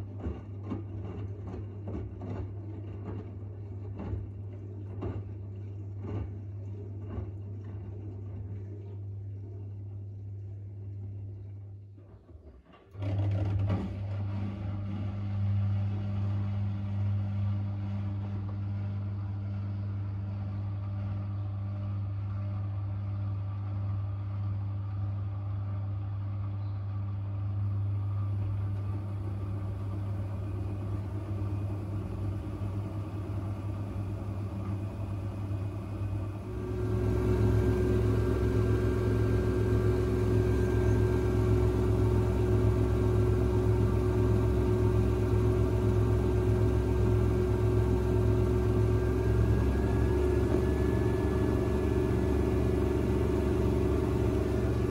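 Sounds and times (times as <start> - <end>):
washing machine running: 0.0 - 54.9
high steady spin tone: 29.2 - 50.0.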